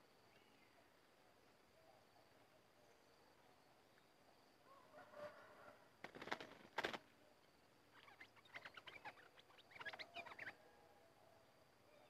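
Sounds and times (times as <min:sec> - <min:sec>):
scratchy bird chattering calls: 0:07.9 - 0:10.6.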